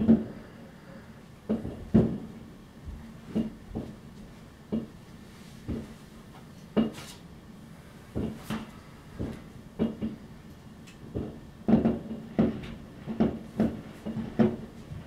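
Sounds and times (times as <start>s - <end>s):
distant fireworks bangs: 11.0s - 15.0s.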